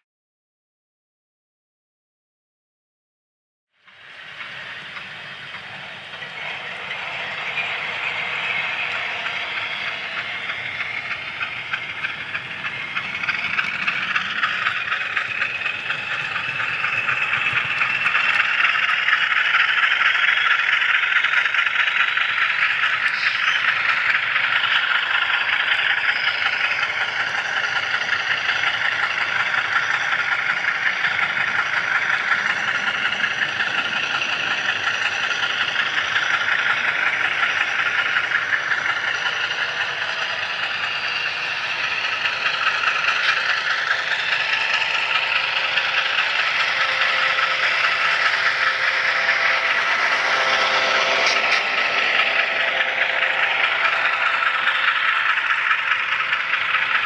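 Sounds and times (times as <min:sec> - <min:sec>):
faint gliding whine: 0:03.9 - 0:57.0
model train wheels rattling: 0:03.9 - 0:57.0.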